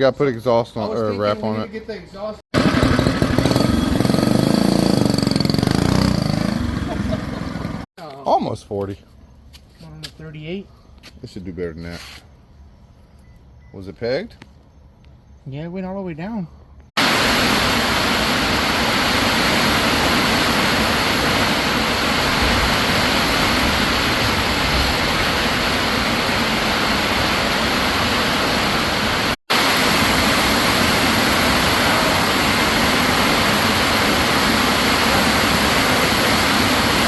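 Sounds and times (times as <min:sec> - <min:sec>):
wind rushing over microphone: 0:21.5 - 0:28.5.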